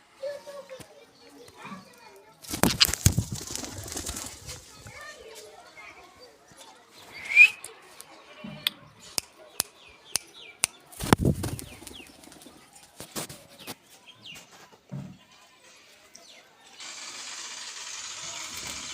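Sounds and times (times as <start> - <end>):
parrot wings flapping: 2.5 - 4.6, 11.0 - 12.5.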